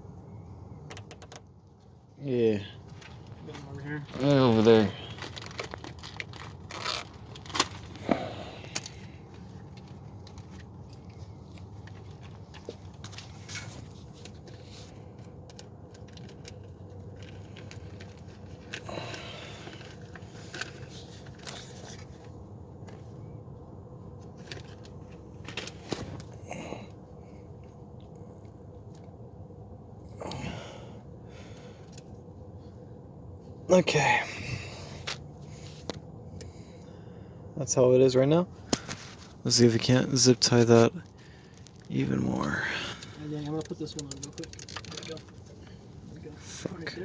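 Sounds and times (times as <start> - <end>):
steady low hum: 0.0 - 44.0
hands clicking and rustling hoses: 0.9 - 1.4, 43.5 - 45.4
sharp clicks and rustles: 0.9 - 1.5, 2.9 - 8.0, 43.0 - 46.3.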